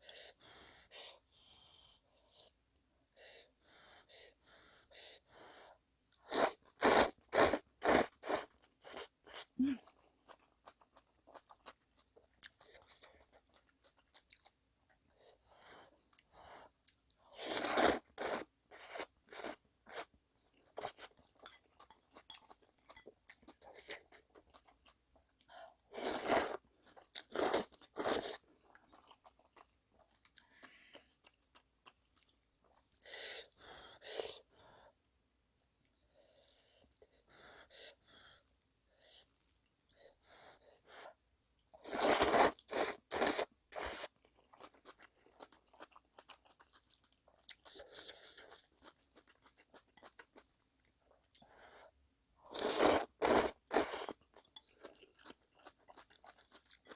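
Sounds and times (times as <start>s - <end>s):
crunching and chewing food: 6.2s - 33.0s, 41.8s - 51.7s, 52.4s - 56.9s.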